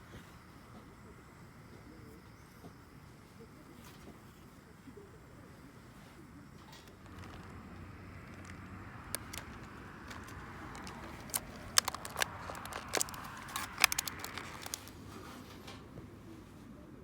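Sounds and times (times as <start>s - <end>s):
wood fire crackling and popping: 6.9s - 15.1s.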